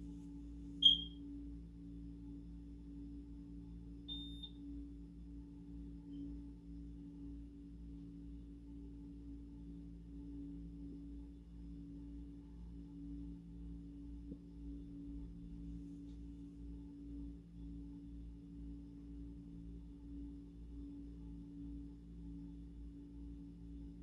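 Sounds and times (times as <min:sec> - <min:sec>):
electronic beep: 0:00.8 - 0:01.1, 0:04.1 - 0:04.6.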